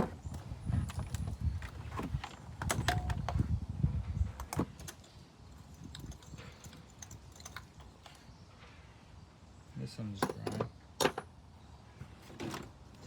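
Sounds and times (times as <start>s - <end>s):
tools clicking and clinking: 4.4s - 8.3s.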